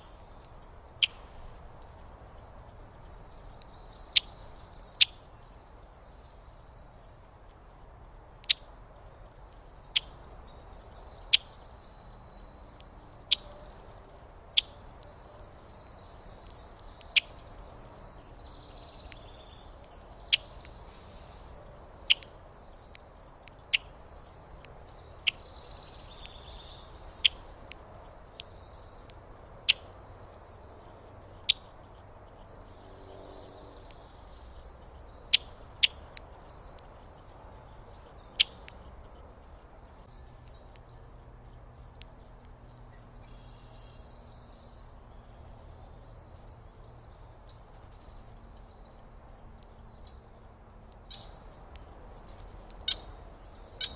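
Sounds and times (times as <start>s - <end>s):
faint high bird sounds: 0.0s - 53.9s
bird chip calls: 2.7s - 7.7s, 9.5s - 13.8s, 14.5s - 30.4s, 31.0s - 39.3s, 51.1s - 51.5s, 52.3s - 53.9s.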